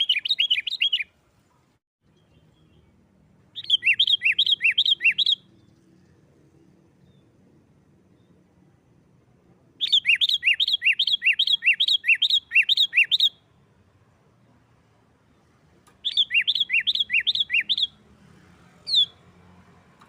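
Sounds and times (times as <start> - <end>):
bird fast repeated call notes: 3.6 - 5.5, 9.8 - 13.4, 16.0 - 18.0.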